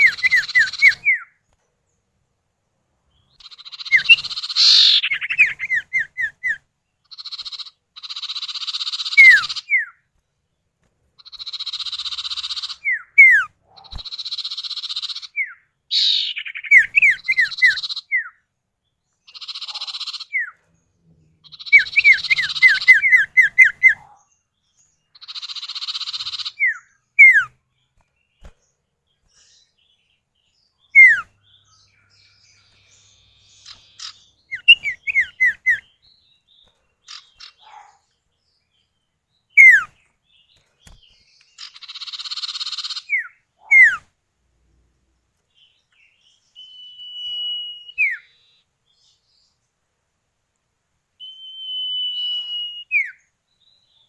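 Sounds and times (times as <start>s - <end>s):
bird rasping buzzy calls: 3.4s - 9.8s
bird downslurred whistles: 26.6s - 27.5s, 31.0s - 31.3s, 39.6s - 39.9s, 43.2s - 44.0s, 46.6s - 48.3s, 51.2s - 53.2s.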